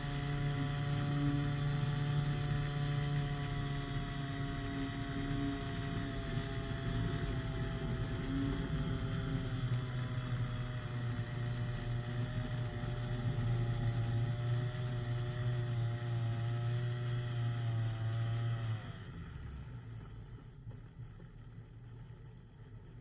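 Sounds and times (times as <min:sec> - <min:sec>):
hang glider engine running: 0:00.0 - 0:23.0.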